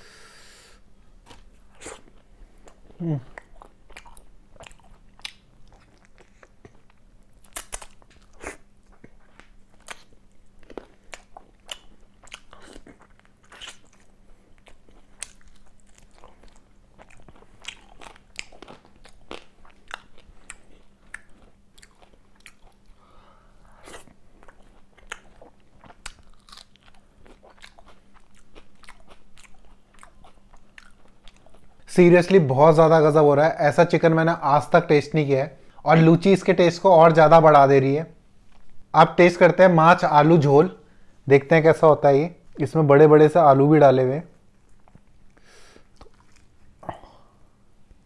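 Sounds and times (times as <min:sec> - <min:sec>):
wet chewing mouth clicks: 0:02.7 - 0:22.9.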